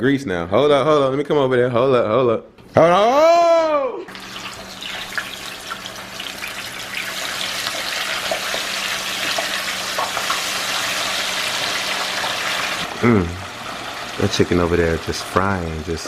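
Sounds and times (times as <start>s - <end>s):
oil crackles and pops: 4.1s - 12.9s
chicken deep-frying in oil: 4.1s - 16.0s.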